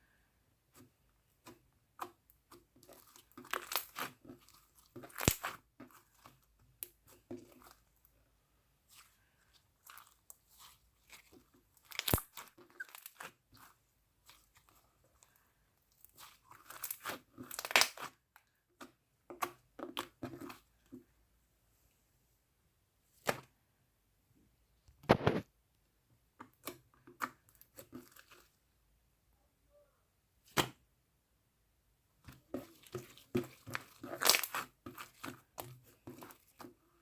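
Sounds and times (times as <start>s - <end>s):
slime squished by hand: 1.4s - 7.9s, 8.9s - 15.4s, 16.0s - 18.2s, 32.3s - 36.7s.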